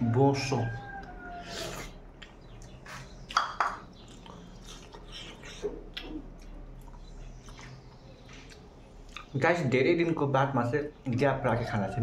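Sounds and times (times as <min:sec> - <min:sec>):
person chewing food: 0:01.0 - 0:09.4.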